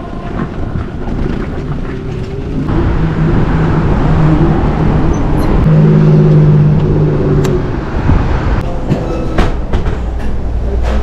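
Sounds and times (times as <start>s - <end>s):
wind rushing over microphone: 0.0s - 8.6s
road noise: 0.0s - 11.0s.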